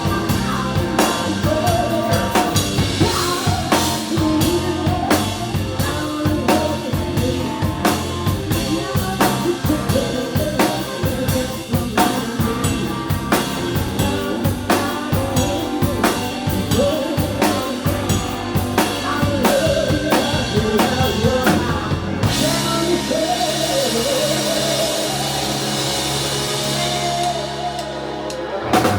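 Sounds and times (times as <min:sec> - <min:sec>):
blues-rock band playing: 0:00.0 - 0:28.9
pounding drum kit: 0:00.0 - 0:28.9
woman singing: 0:00.0 - 0:28.9.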